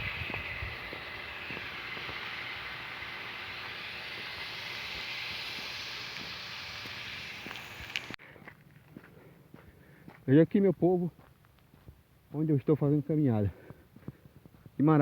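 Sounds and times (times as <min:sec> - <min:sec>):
steady rushing hiss: 0:00.0 - 0:08.2.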